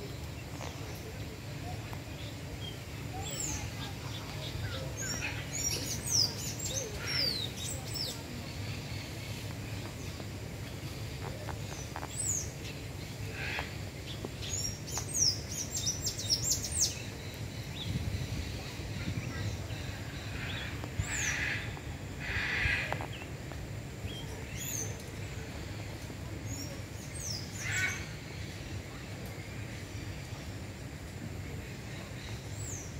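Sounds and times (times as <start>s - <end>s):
birds chirping: 0.0s - 28.7s.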